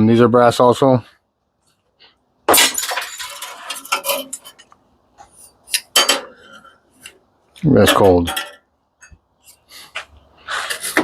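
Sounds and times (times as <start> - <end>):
metal parts clattering: 2.5 - 4.7, 5.6 - 6.7, 7.8 - 8.6.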